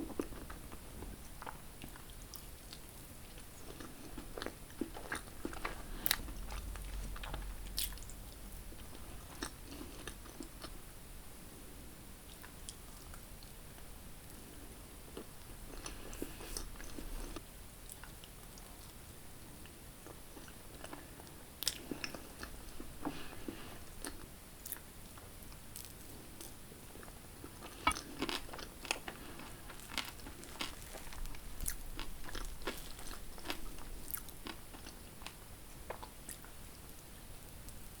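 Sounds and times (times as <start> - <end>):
biting and chewing crisp crepes: 20.1 - 36.5.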